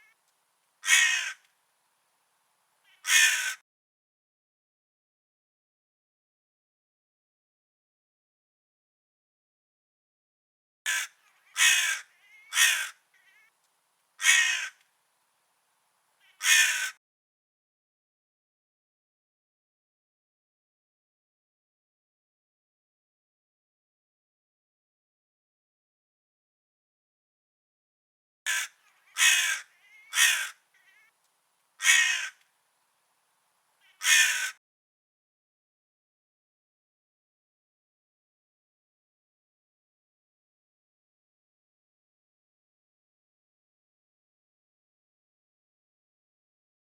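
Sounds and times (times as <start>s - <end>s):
crow cawing: 0.8s - 1.5s, 2.9s - 3.6s, 10.9s - 13.5s, 14.2s - 14.8s, 16.2s - 17.0s, 28.5s - 31.1s, 31.8s - 32.4s, 33.8s - 34.6s
faint short bird calls: 2.8s - 3.6s, 10.9s - 13.6s, 16.2s - 17.0s, 28.5s - 31.2s, 31.8s - 32.5s, 33.8s - 34.6s.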